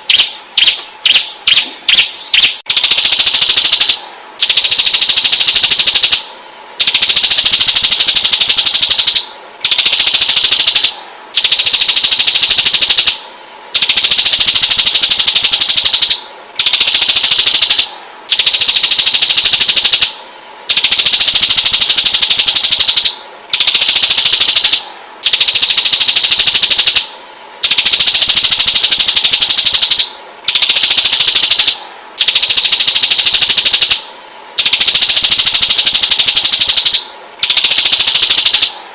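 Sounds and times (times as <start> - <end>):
songbird high trill: 0.0 - 13.2.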